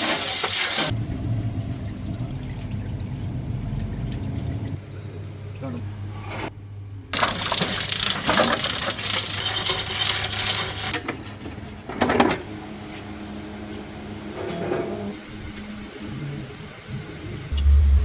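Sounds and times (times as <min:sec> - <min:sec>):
metallic clinking and rattling: 0:07.2 - 0:11.1.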